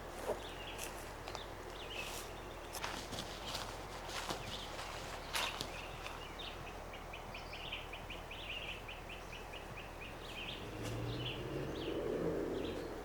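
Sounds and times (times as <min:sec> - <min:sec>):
bird chirping: 0:00.3 - 0:13.0.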